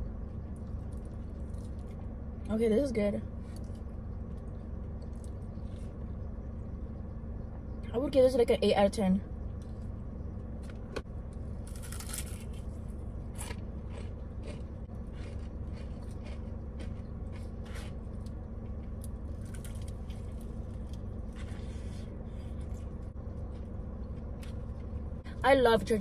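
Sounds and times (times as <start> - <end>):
steady low hum: 0.0 - 26.0
fried chicken crunching: 0.6 - 2.1, 11.6 - 25.0.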